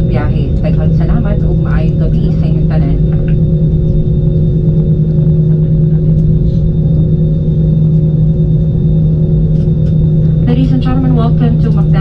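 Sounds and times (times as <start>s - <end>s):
airliner cabin drone: 0.0s - 12.0s.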